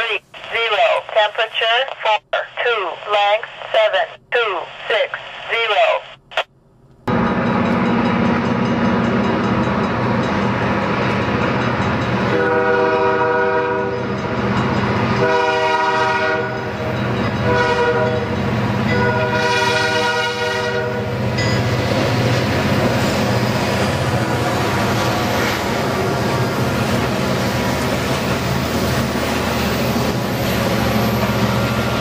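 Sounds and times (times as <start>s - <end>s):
rumble of passing train: 6.9s - 32.0s
locomotive air horn blasts: 12.3s - 14.1s, 15.2s - 16.8s, 17.4s - 18.3s, 18.9s - 21.1s.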